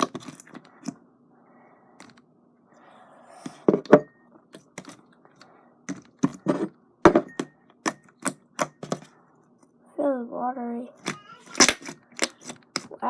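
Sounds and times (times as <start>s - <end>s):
slime squishing: 11.0s - 13.0s.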